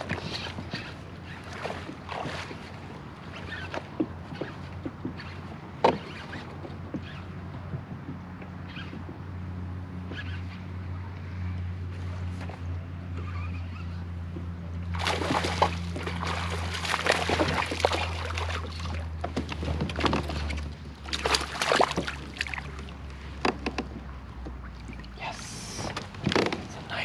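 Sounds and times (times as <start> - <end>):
water splashing and sloshing: 0.0 - 7.2, 14.8 - 27.0.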